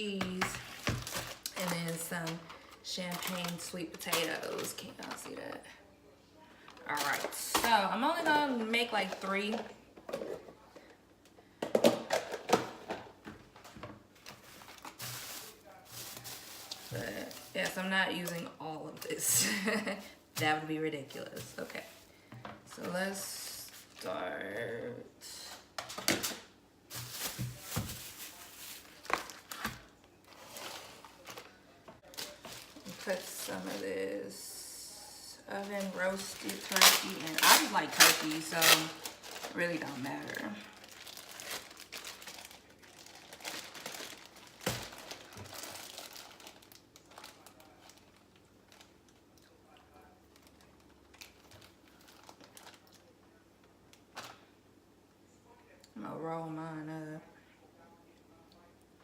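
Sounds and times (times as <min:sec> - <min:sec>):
packaging rustling: 0:00.3 - 0:05.3, 0:13.5 - 0:18.4, 0:25.8 - 0:33.8, 0:35.6 - 0:49.0, 0:50.4 - 0:53.0
plastic containers set down on counter: 0:11.6 - 0:14.0, 0:25.8 - 0:28.3.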